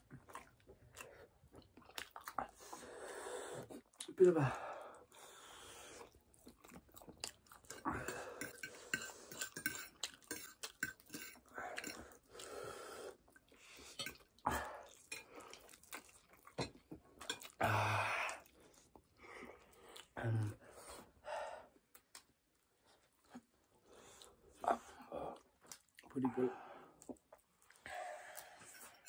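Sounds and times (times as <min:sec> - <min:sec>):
chewing and wet mouth noises: 0:00.0 - 0:02.9, 0:03.6 - 0:04.2, 0:05.9 - 0:17.6, 0:18.2 - 0:21.0, 0:21.8 - 0:26.2, 0:26.9 - 0:29.0.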